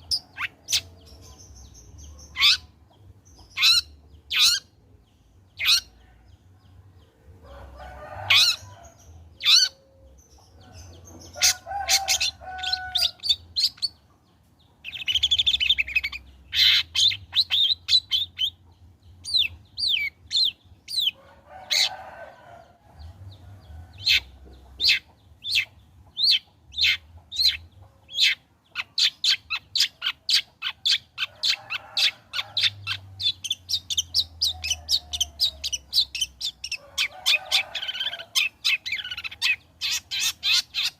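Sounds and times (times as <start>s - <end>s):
bird singing sharp calls and chatter: 0.0s - 40.9s.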